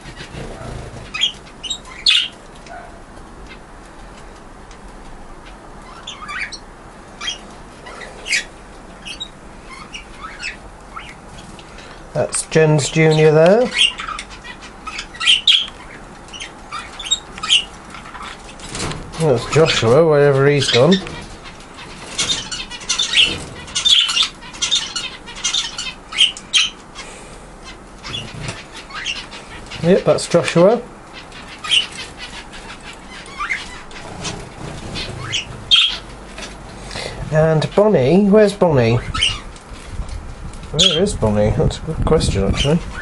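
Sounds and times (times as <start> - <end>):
wings fluttering: 0.0 - 2.7, 20.6 - 25.3, 31.5 - 36.8
budgerigars chirping: 0.0 - 2.9, 5.4 - 39.6, 40.8 - 41.3, 42.0 - 43.0.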